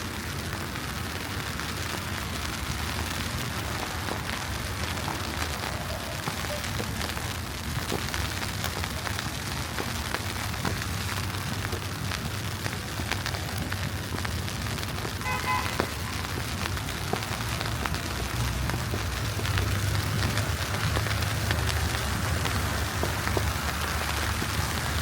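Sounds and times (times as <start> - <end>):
low city rumble: 0.0 - 25.0
wet snow ticking on street: 0.0 - 25.0.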